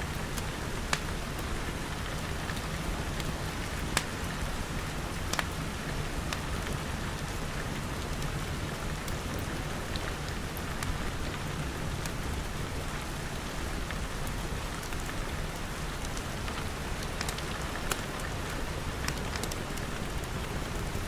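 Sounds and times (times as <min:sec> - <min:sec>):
steady rain falling: 0:00.0 - 0:21.0
wood fire crackling and popping: 0:00.2 - 0:08.3, 0:13.8 - 0:21.0.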